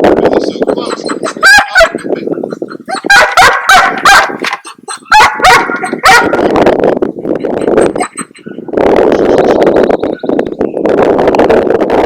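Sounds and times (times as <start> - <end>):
dog barking: 1.4 - 2.0, 3.0 - 4.4, 5.1 - 6.5.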